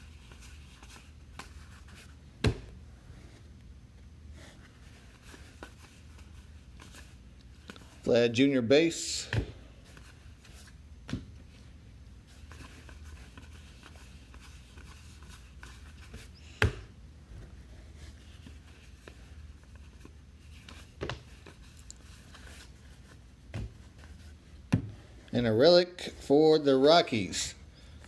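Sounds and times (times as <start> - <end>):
low steady hum: 0.0 - 28.0
trading cards shuffling: 17.8 - 24.4.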